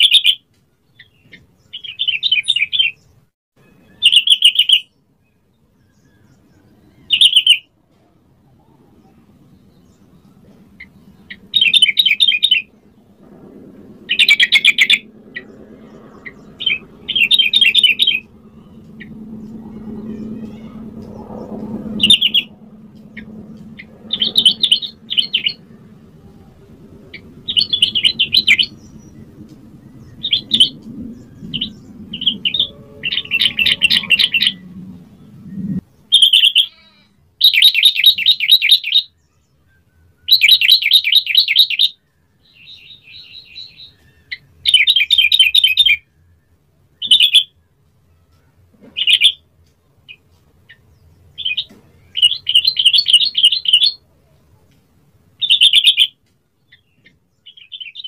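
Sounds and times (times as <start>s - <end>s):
bulbul singing: 0.0s - 7.7s, 13.9s - 47.7s, 49.0s - 54.0s, 55.4s - 58.0s
low background rumble: 7.7s - 36.2s.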